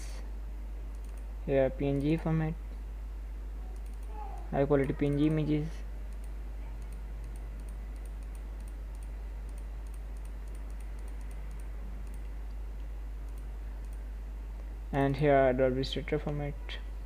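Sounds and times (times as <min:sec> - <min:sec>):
low electrical hum: 0:00.0 - 0:17.0
keyboard or mouse clicking: 0:00.9 - 0:01.3, 0:03.8 - 0:04.1, 0:06.1 - 0:12.4, 0:13.3 - 0:14.0.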